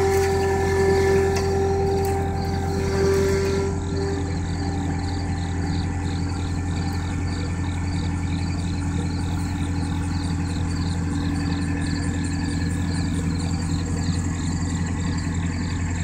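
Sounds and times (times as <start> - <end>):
pulsing high-pitched squeal: 0.0 - 16.0
skid steer engine running: 0.0 - 16.0.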